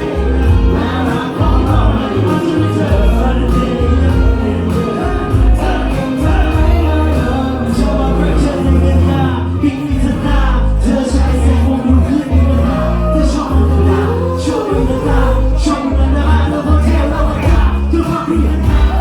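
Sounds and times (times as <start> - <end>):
drums and cymbals: 0.0 - 8.6
heavy bass line: 0.0 - 19.0
live pop-rock band: 0.0 - 19.0
person singing: 0.0 - 19.0.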